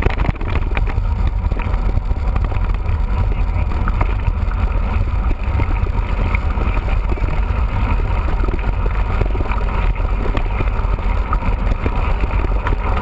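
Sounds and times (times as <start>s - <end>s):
bike knocks and rattles: 0.0s - 13.0s
wind buffeting microphone: 0.0s - 13.0s.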